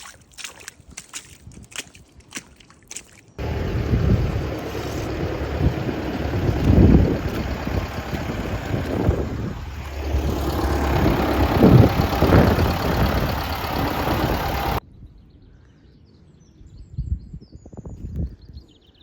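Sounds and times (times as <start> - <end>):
wind buffeting microphone: 3.4 - 14.8.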